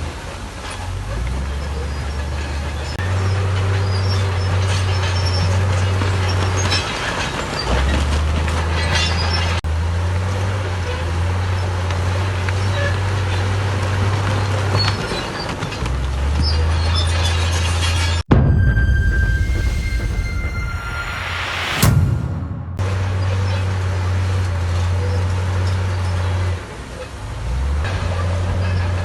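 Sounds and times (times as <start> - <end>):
diesel engine droning: 0.0 - 15.1
metallic clanking and squealing: 0.6 - 9.6, 12.4 - 23.9.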